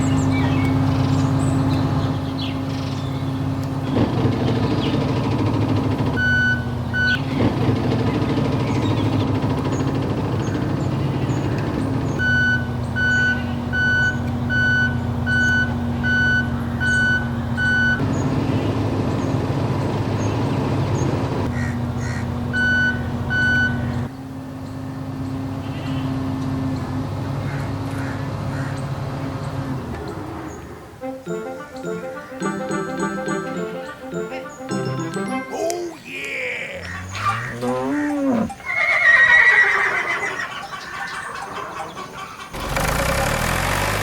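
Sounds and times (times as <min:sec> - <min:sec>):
engine humming: 0:00.0 - 0:44.0
vehicle reversing alarm beeping: 0:06.0 - 0:07.2, 0:12.2 - 0:18.0, 0:22.5 - 0:24.1.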